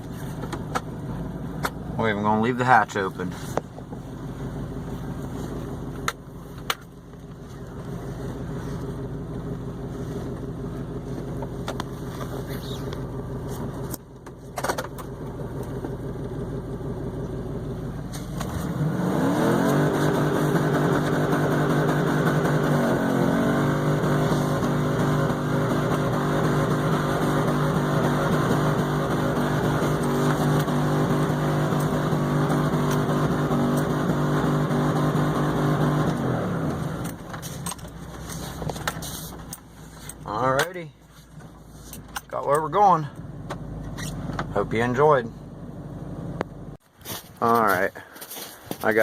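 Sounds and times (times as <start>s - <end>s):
engine running and revving: 3.3s - 40.7s.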